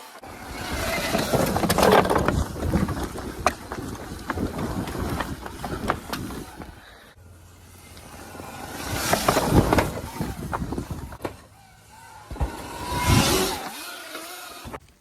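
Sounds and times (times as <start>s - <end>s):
wind buffeting microphone: 0.4s - 6.9s, 8.8s - 11.2s.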